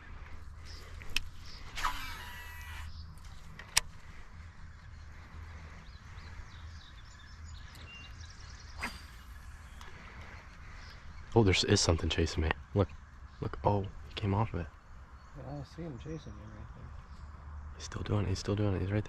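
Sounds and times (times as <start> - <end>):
steady low rumble: 0.0 - 19.0
fishing line whirring off reel: 1.7 - 2.9, 8.8 - 9.7.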